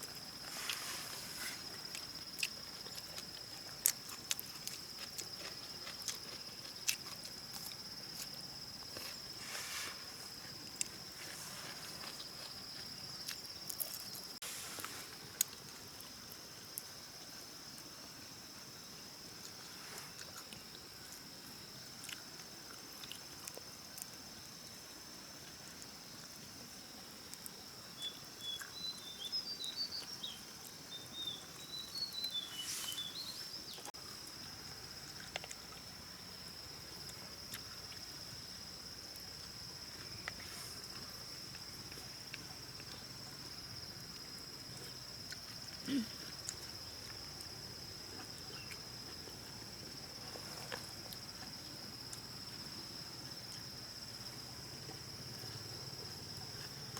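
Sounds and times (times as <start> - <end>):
high-pitched insect chorus: 0.0 - 56.9
bird chirping: 28.0 - 33.9.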